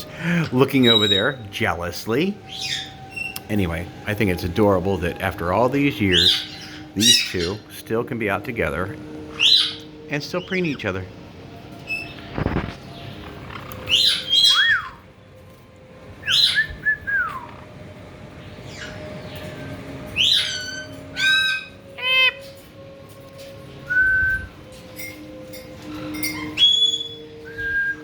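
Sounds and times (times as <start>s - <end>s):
parrot whistles and squawks: 0.5s - 1.5s, 2.4s - 3.4s, 6.1s - 7.7s, 9.2s - 10.9s, 11.8s - 15.0s, 16.2s - 17.7s, 18.6s - 22.7s, 23.4s - 28.0s.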